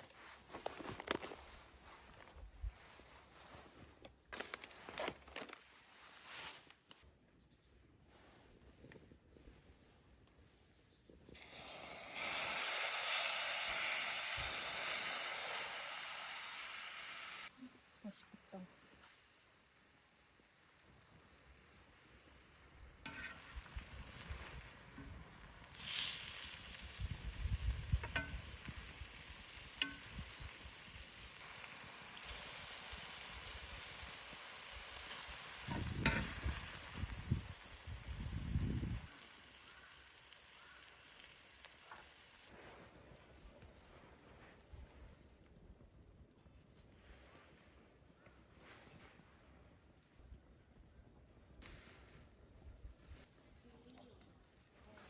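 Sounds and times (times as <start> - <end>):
meat sizzling on a grill: 11.4 - 17.5, 22.4 - 42.9
sharp clicks: 20.7 - 22.5.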